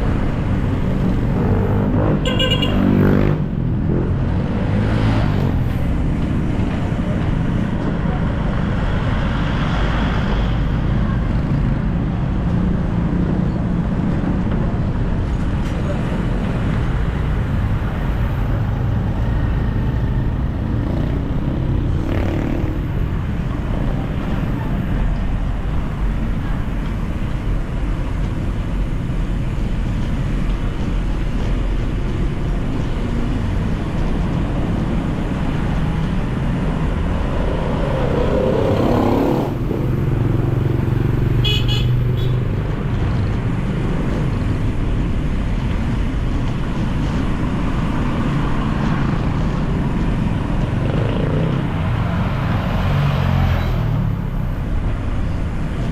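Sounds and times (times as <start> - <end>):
vehicle passing loudly: 0.0 - 6.7, 18.0 - 24.7, 34.4 - 43.2, 50.4 - 54.6
car and motorcycle engines passing: 0.0 - 55.9.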